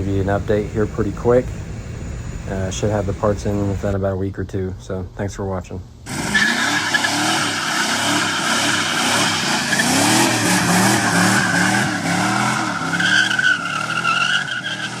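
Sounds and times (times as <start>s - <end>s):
car engine revving: 6.1s - 15.0s.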